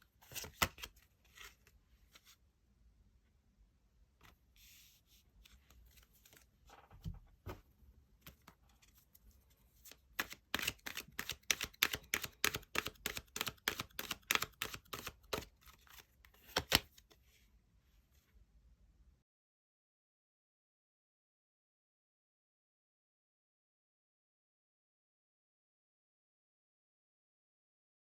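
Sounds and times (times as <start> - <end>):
cards being shuffled: 0.2 - 2.4, 9.8 - 17.2.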